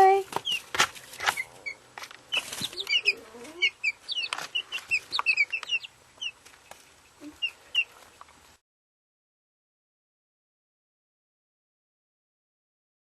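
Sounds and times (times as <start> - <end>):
chicks peeping: 0.0 - 8.6.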